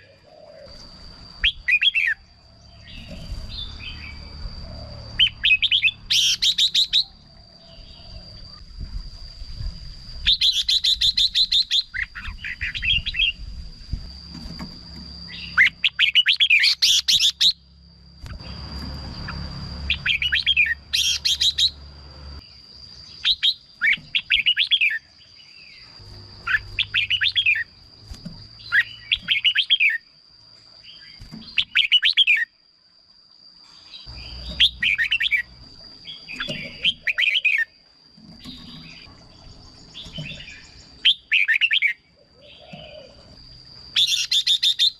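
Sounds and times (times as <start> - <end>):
bird warbling: 19.2 - 21.8, 34.1 - 37.8.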